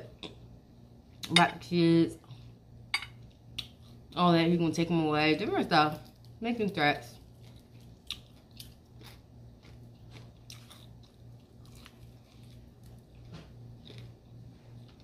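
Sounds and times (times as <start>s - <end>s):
steady low hum: 0.0s - 15.0s
chewing and biting food: 7.1s - 15.0s.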